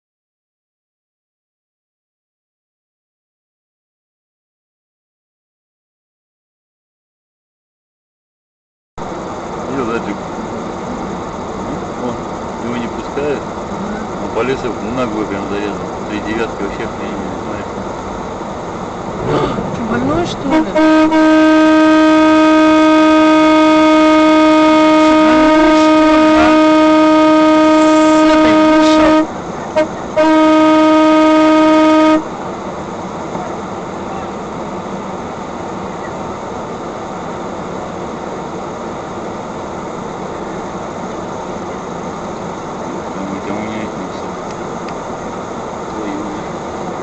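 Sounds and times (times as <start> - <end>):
road and traffic noise: 9.0 - 47.0
car horn blast: 20.4 - 32.4.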